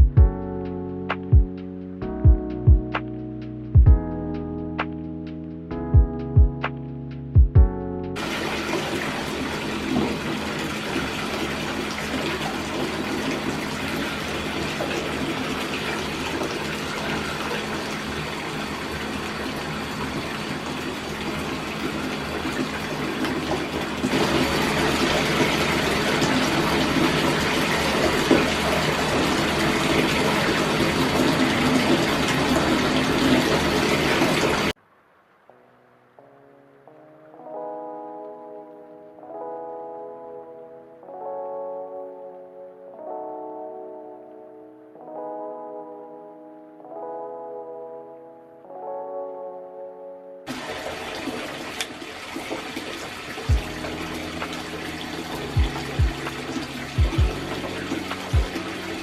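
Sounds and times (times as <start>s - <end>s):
tap water running into bathtub: 8.2s - 34.8s, 50.5s - 59.0s.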